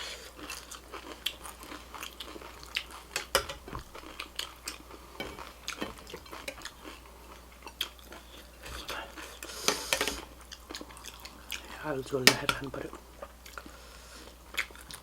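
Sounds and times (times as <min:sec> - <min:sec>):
chewing and crunching food: 0:00.0 - 0:15.0
cutlery clicking against dishes: 0:03.1 - 0:03.7.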